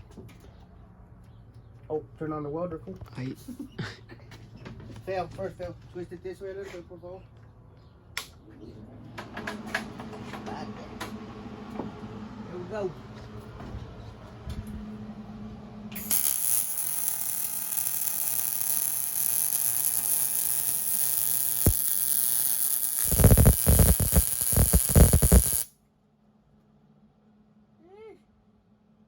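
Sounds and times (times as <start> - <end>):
welder crackling hiss: 16.0 - 25.7.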